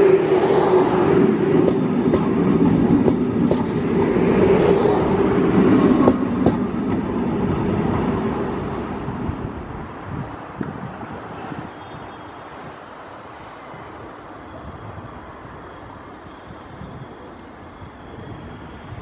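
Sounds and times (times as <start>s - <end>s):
train wheels clicking over rail joints: 1.0s - 9.3s.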